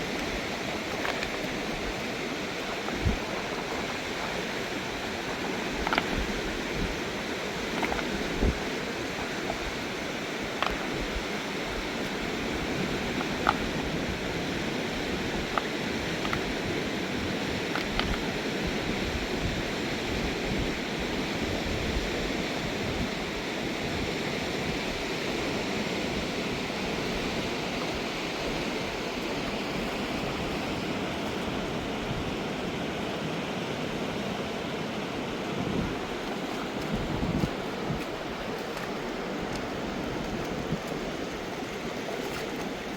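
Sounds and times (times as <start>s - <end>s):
river rushing: 0.0s - 42.9s
faint clicks: 15.5s - 16.6s.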